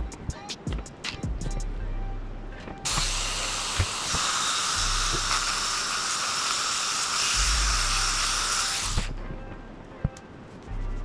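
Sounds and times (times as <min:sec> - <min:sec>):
low background music: 0:00.0 - 0:11.0
power polisher hissing on brass: 0:02.9 - 0:09.1.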